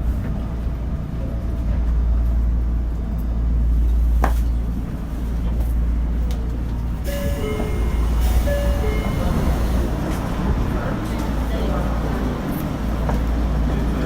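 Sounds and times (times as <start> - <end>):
train rumbling on track: 0.0 - 14.0
short steady tones: 7.1 - 9.8
train wheel squeal: 7.1 - 9.8.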